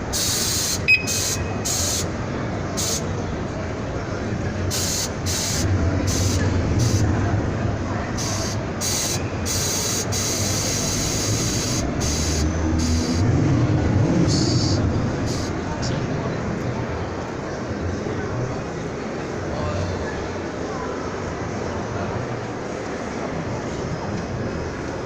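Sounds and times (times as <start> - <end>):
vehicle engine rumble: 0.9 - 20.5
wind and road noise: 11.7 - 18.0.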